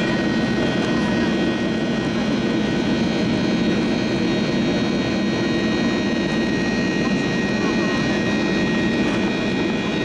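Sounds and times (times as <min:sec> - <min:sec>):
jet engines heard from cabin: 0:00.0 - 0:10.0.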